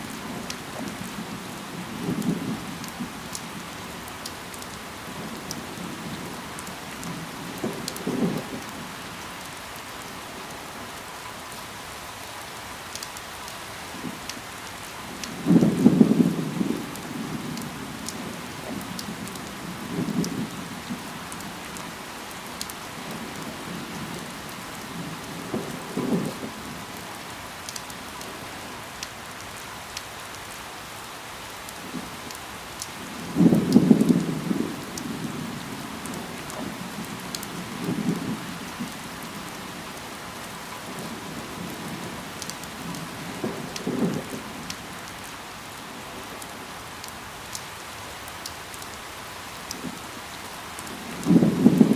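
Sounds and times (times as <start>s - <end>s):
rain falling on leaves: 0.0s - 51.9s.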